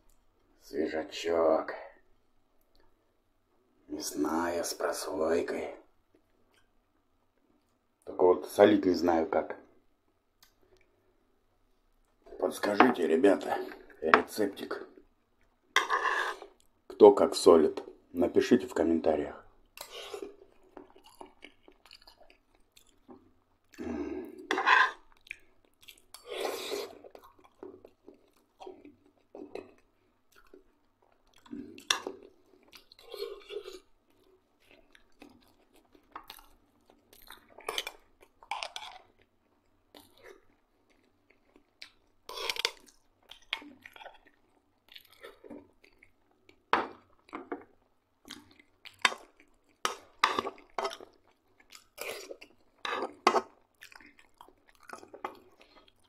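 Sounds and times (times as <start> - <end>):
man chewing food: 6.0 - 8.0, 14.9 - 17.0, 19.5 - 56.0.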